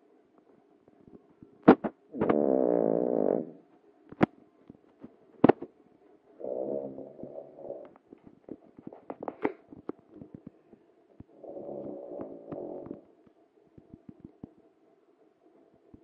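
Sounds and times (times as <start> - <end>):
dog snoring buzzily: 2.1 - 3.6, 6.4 - 8.0, 11.3 - 13.1
crackling clicks: 7.8 - 14.7.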